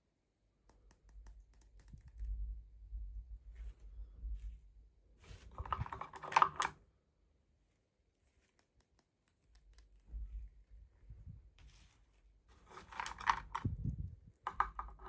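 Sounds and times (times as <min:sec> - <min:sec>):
handling plastic toy parts: 0:05.2 - 0:06.9, 0:08.2 - 0:15.0.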